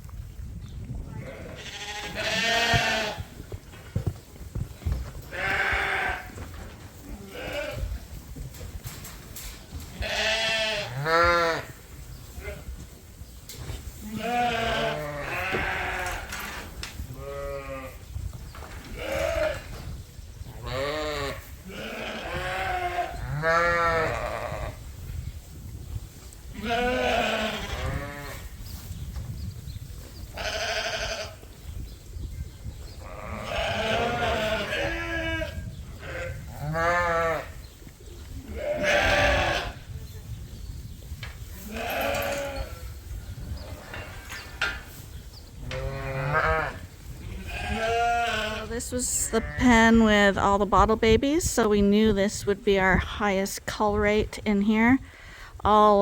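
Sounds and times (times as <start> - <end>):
sheep bleating: 1.2 - 3.2, 10.0 - 11.6, 45.8 - 48.7.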